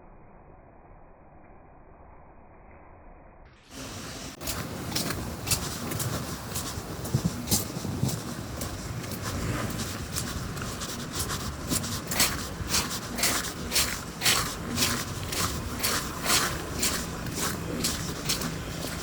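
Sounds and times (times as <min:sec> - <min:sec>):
crunching footsteps: 0:03.7 - 0:19.0.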